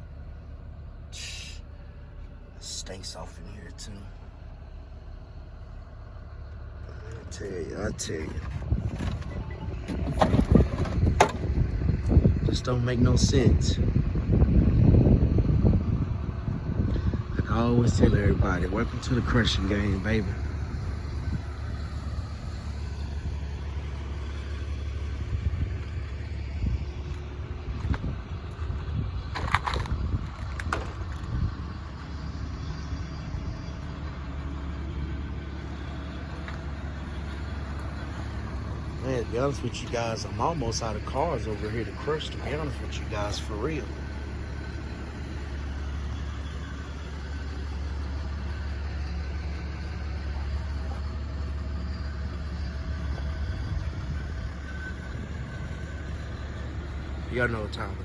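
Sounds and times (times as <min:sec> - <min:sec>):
heavy engine droning: 0:00.0 - 0:58.0
car crusher rumbling: 0:08.0 - 0:13.3.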